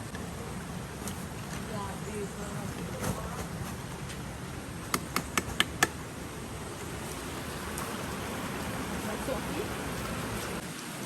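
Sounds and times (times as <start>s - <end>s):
rain hiss: 0.0s - 11.0s
running river water: 5.4s - 11.0s.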